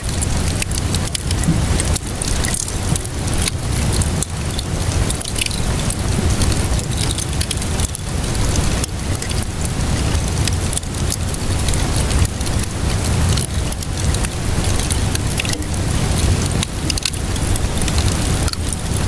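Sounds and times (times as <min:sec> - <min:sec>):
rainfall hiss: 0:00.0 - 0:19.0
wood fire crackling: 0:00.0 - 0:19.0
low rumble: 0:11.2 - 0:19.0.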